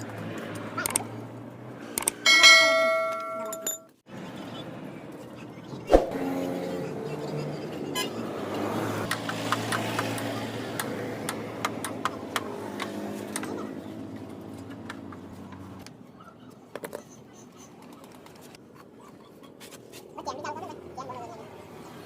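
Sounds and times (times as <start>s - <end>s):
sharp clicks: 0.8s - 1.1s, 2.0s - 2.2s.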